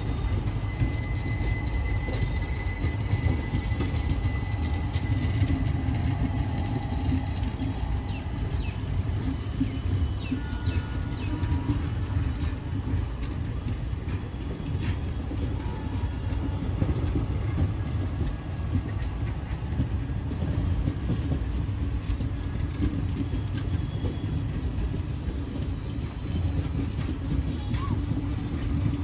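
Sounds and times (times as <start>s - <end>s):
clicks and clanks of running gear: 0.0s - 29.0s
train wheels rumbling on rails: 0.0s - 29.0s.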